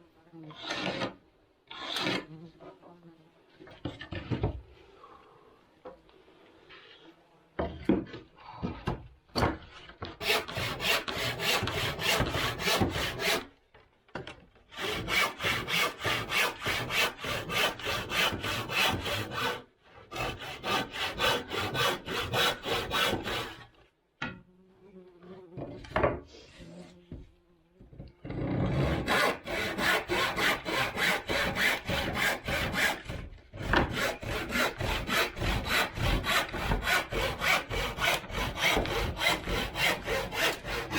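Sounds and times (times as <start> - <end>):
hand saw cutting wood: 0.5 - 2.4, 10.1 - 13.5, 14.7 - 23.8, 28.3 - 40.9.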